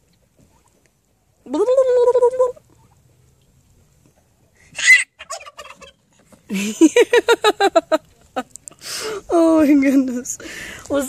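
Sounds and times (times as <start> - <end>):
turkey gobbling: 1.5 - 3.1, 4.7 - 6.4.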